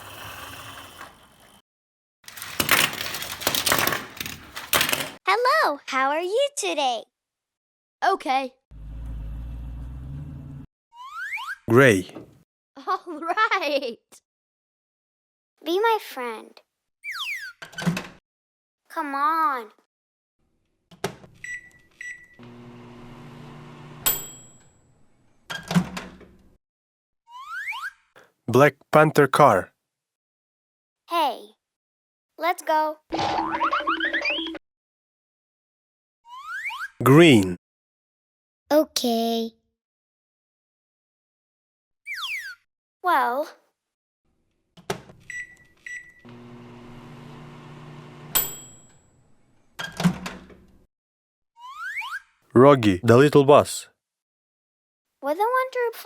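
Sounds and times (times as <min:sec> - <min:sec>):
microwave oven humming: 0:22.4 - 0:24.1, 0:46.2 - 0:48.4
bell ding: 0:24.1 - 0:24.7, 0:48.4 - 0:49.1
keypad beeps: 0:45.3 - 0:46.2.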